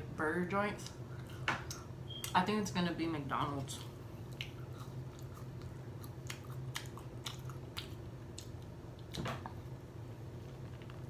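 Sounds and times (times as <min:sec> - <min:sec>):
chewing with wet clicks: 0:03.8 - 0:09.6.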